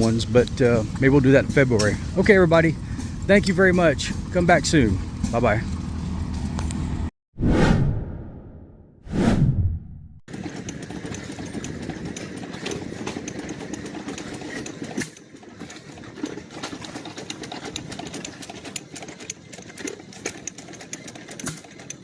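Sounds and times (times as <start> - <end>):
engines running: 0.0 - 7.1, 10.3 - 21.9
whoosh: 7.4 - 10.2
clicking and knocking: 10.3 - 22.0.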